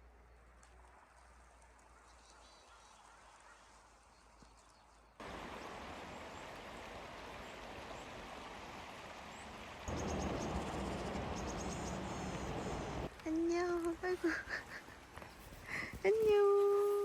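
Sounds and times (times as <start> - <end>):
stream rushing: 5.2 - 13.2
small birds chirping: 9.3 - 13.6.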